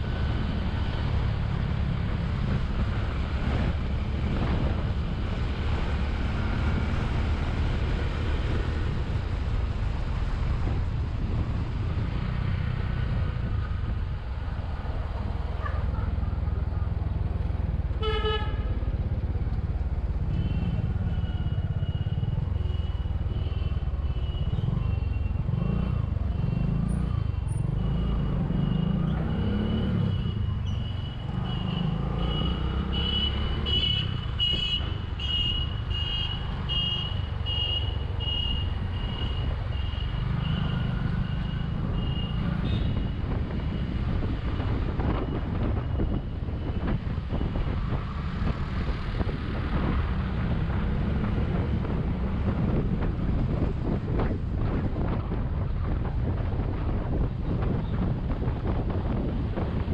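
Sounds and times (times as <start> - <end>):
wind rushing over microphone: 0.0 - 17.8, 40.9 - 59.9.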